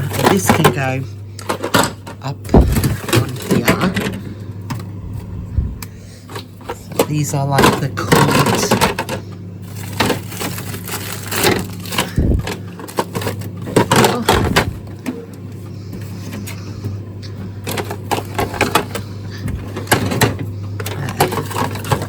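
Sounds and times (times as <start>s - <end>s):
frozen packets clattering: 0.0s - 4.9s, 6.1s - 22.0s
steady low hum: 0.0s - 22.0s.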